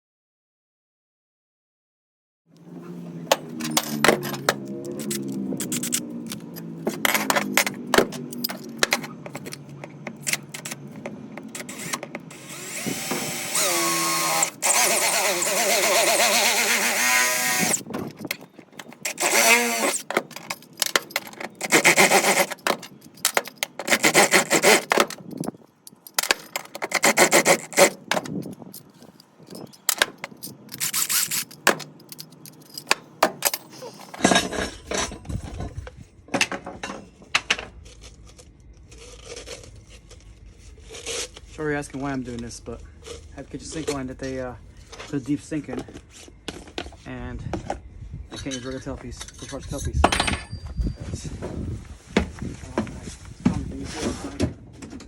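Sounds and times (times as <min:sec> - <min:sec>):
motor hum: 0:02.6 - 0:25.5
loud pipe cutting noise: 0:03.3 - 0:22.9, 0:23.6 - 0:25.2, 0:26.6 - 0:28.2
rasping strokes on pipe: 0:21.6 - 0:22.7.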